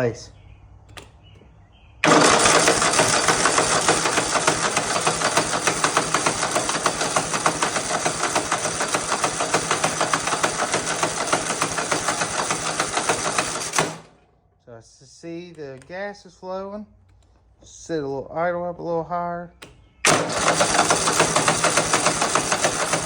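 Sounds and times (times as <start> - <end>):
mower engine running: 2.0 - 14.2, 20.0 - 23.0.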